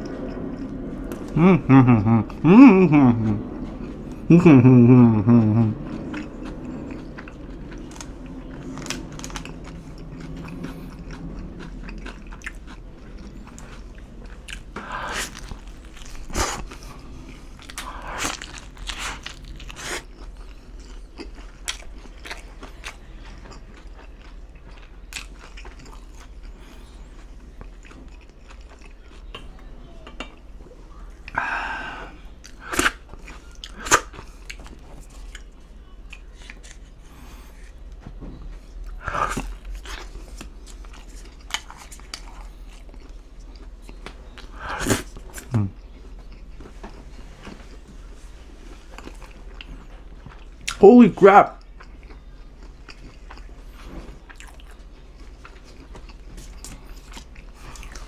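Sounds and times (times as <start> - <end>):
pizza crust crunching: 2.8 - 29.6, 32.5 - 38.0, 38.6 - 58.0.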